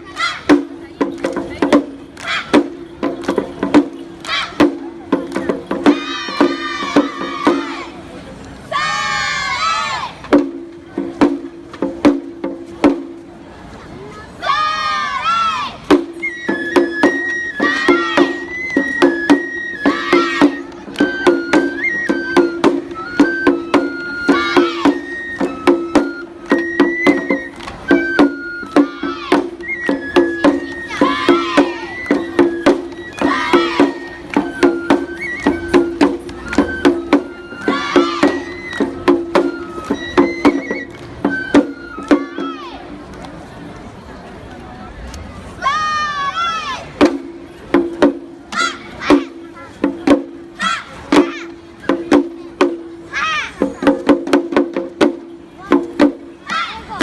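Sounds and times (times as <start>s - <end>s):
sharp percussion strikes: 0.0s - 7.9s, 15.8s - 42.6s.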